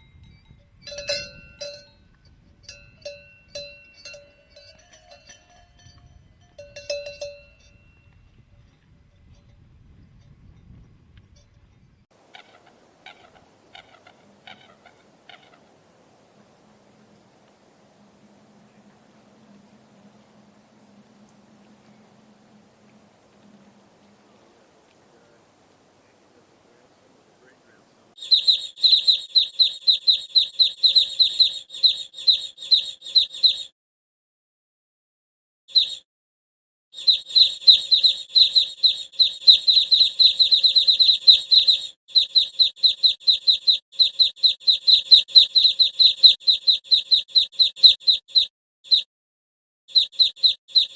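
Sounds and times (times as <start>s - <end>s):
small animal high calls: 12.2s - 15.8s
bird chirping rapidly: 27.0s - 33.7s, 35.7s - 36.0s, 37.0s - 49.1s, 49.9s - 50.9s.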